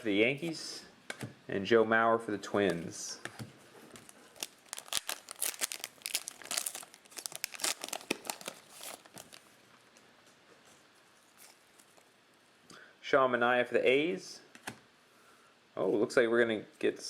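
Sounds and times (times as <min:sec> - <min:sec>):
cellophane wrapper crinkling and tearing: 0:03.9 - 0:10.0.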